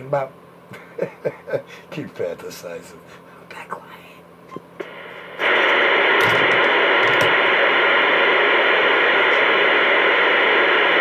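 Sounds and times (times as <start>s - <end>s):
radio static hiss: 4.8s - 11.0s.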